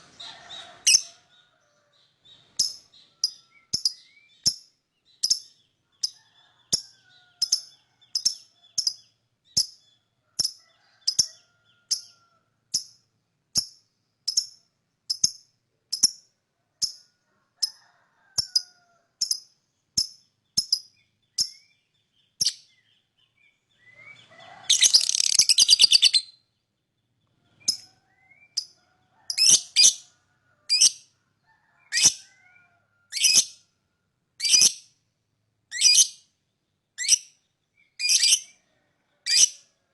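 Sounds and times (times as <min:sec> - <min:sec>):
lovebird chirping: 0:00.0 - 0:13.0, 0:13.6 - 0:17.0, 0:19.2 - 0:26.5, 0:27.5 - 0:30.1, 0:34.4 - 0:34.9, 0:35.7 - 0:36.2, 0:37.0 - 0:38.6
lovebird chattering trill: 0:00.8 - 0:01.2, 0:24.6 - 0:26.4.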